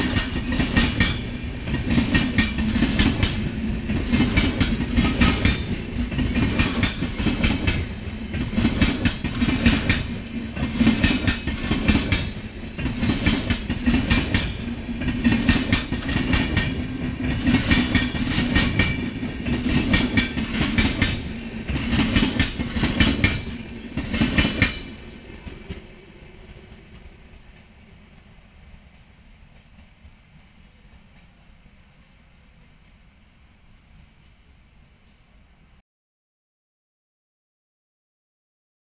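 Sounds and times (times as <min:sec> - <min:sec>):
wheels clattering over rail joints: 0:00.0 - 0:25.9
train passing rumble: 0:00.0 - 0:35.8.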